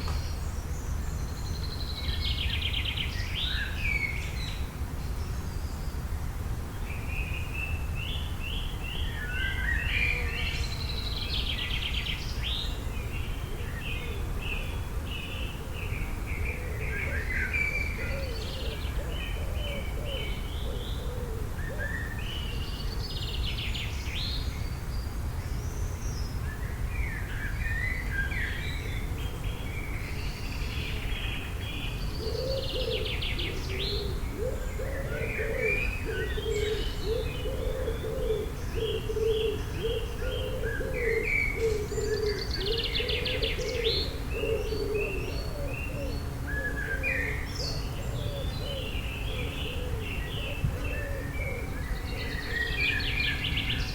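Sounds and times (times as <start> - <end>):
songbirds chirping and trilling: 0.0 - 53.9.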